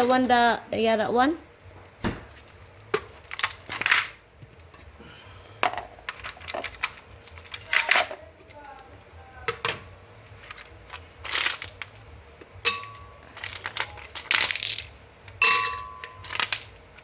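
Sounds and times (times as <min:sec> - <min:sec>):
ice cubes clinking into glass jar: 0:12.7 - 0:16.8.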